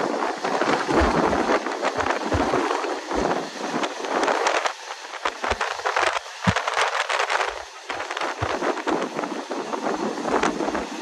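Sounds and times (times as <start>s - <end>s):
wind rushing on microphone: 0.0s - 11.0s
low thumps: 1.0s - 3.4s.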